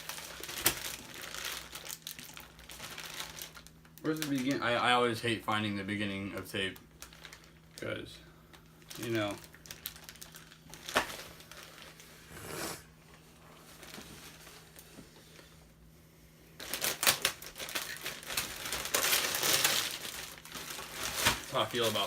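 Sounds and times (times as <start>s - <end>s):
packing tape ripping: 0.0s - 4.6s, 16.6s - 22.0s
cardboard and paper crinkling: 0.0s - 4.7s, 13.6s - 15.1s, 16.6s - 22.0s.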